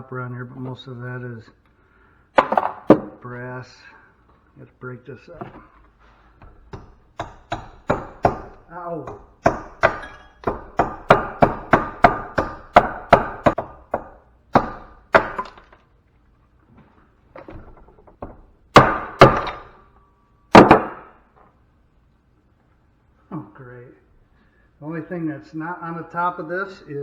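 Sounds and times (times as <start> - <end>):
hammer striking metal: 6.4 - 15.6.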